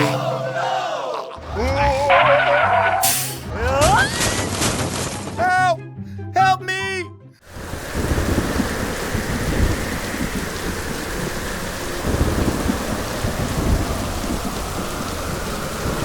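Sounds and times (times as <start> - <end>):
heavy rain falling: 7.4 - 16.0
thunder rumbles: 7.5 - 16.0.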